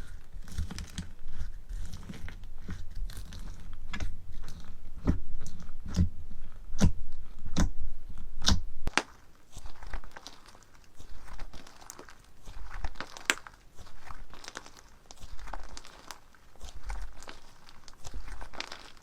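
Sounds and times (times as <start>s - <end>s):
crunchy slime being squeezed: 8.4s - 19.0s.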